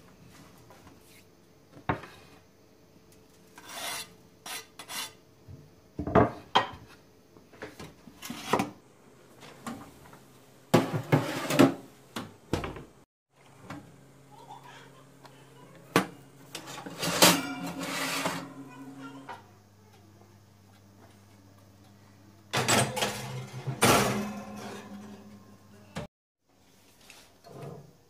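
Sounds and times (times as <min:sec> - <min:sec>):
scraping and rubbing: 0:03.5 - 0:05.2, 0:16.7 - 0:18.5
utensils and dishes clattering: 0:16.5 - 0:18.7, 0:22.6 - 0:25.4.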